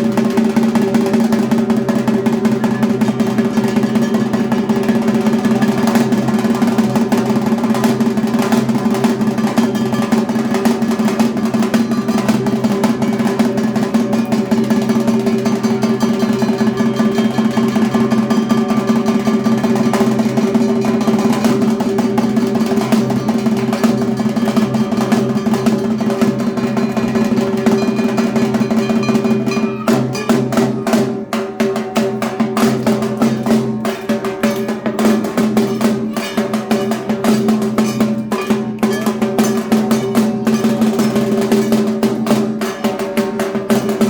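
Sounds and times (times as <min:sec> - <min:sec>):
drums beaten with sticks: 0:00.0 - 0:44.0
ringing drone: 0:15.4 - 0:20.0.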